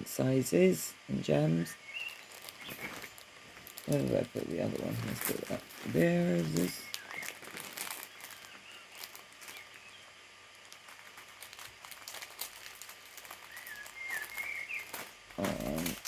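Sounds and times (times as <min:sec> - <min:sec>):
bird chirping faintly: 0:01.4 - 0:03.2, 0:05.2 - 0:10.5, 0:12.7 - 0:16.0
plastic bags crinkling: 0:01.6 - 0:16.0.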